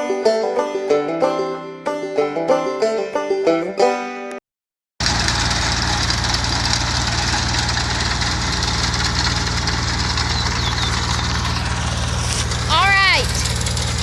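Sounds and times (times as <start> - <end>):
mower engine hum: 5.0 - 14.0.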